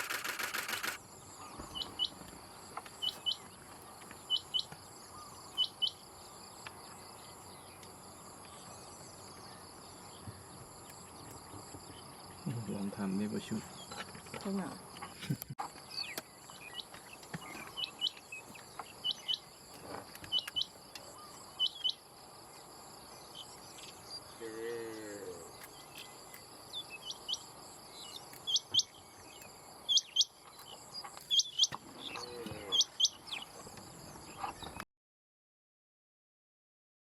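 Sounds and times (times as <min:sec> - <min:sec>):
quail calling: 0:31.0 - 0:33.6
insect trilling: 0:31.3 - 0:33.2.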